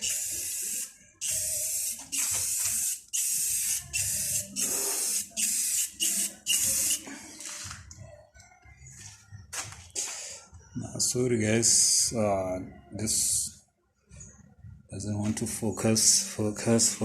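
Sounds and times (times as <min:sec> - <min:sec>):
aerosol spray hissing: 0:00.0 - 0:07.0.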